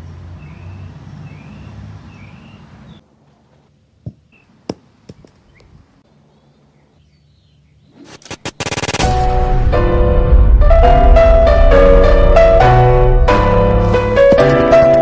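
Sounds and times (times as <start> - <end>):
small bird chirping: 0.4 - 3.0, 4.2 - 4.6, 5.2 - 8.1
steady low rumble: 9.0 - 14.3.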